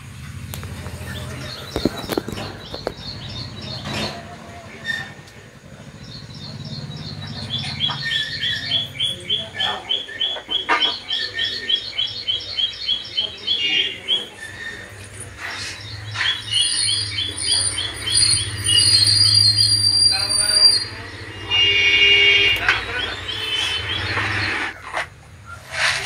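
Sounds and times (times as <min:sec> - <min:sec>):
bird chirping rapidly: 0:01.0 - 0:04.2, 0:05.9 - 0:21.4, 0:22.8 - 0:24.7.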